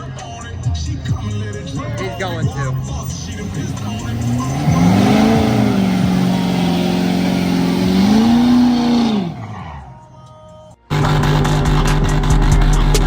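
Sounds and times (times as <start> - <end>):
truck engine revving: 2.4 - 10.1
spinning tyre noise: 2.8 - 10.1.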